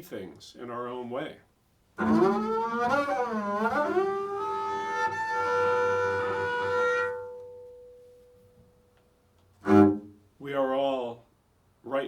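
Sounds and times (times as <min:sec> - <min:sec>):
bowed double bass: 0:02.0 - 0:08.0, 0:09.6 - 0:10.2.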